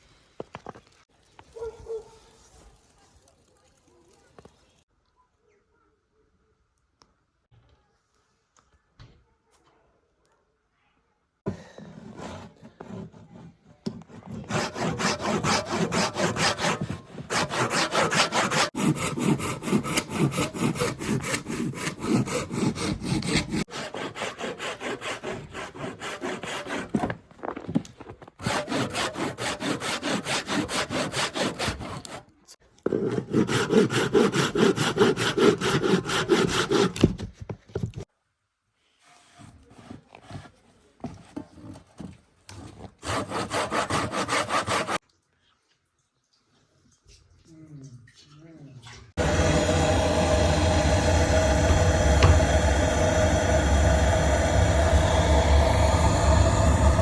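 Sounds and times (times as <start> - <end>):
hand saw cutting wood: 11.5 - 27.2, 28.4 - 32.3, 32.9 - 37.2, 42.6 - 45.0, 49.2 - 57.0.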